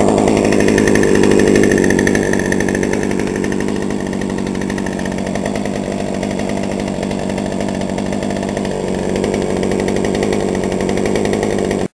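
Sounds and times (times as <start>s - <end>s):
two-stroke chainsaw engine running: 0.0s - 11.9s.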